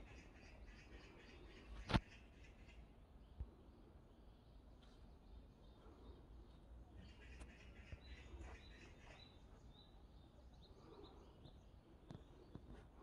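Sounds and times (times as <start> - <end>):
bird chirps: 4.1 - 12.8.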